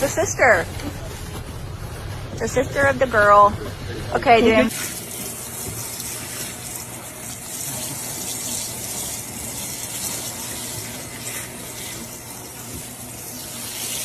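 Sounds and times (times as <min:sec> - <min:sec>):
water running into bathtub: 0:04.3 - 0:14.0.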